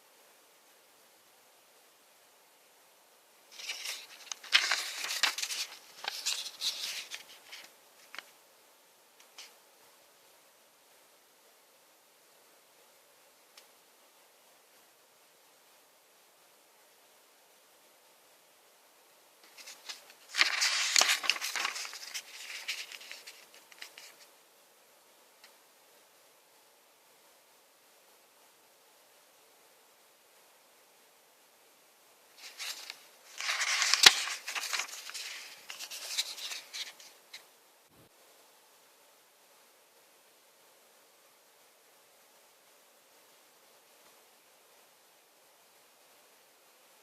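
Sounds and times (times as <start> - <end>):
rustling of things handled: 3.5 - 8.3, 19.4 - 24.3, 32.4 - 37.4.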